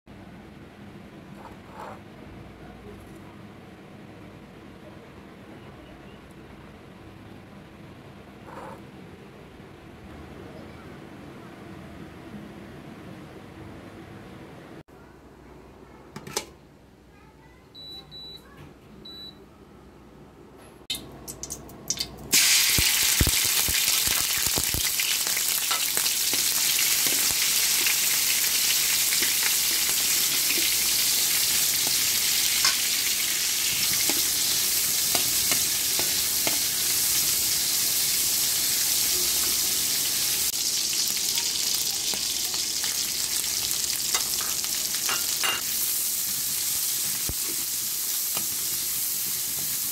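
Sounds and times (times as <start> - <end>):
cooktop beeps: 17.7 - 19.4, 41.2 - 45.7
shrimp sizzling in hot oil: 21.4 - 49.9.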